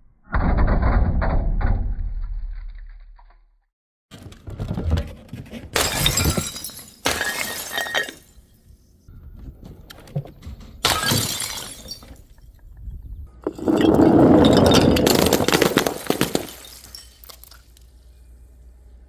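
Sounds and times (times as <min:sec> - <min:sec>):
glass bottles shattering: 0:05.8 - 0:08.7, 0:10.8 - 0:12.5, 0:13.4 - 0:17.8
glass clinking and crunching: 0:05.8 - 0:08.7, 0:10.8 - 0:12.6, 0:13.4 - 0:17.9.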